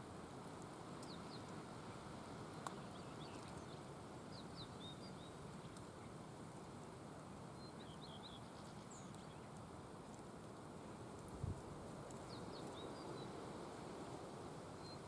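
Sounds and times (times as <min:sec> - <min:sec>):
outdoor background hiss: 0:00.0 - 0:15.0
small birds chirping: 0:07.6 - 0:09.6, 0:12.1 - 0:13.4.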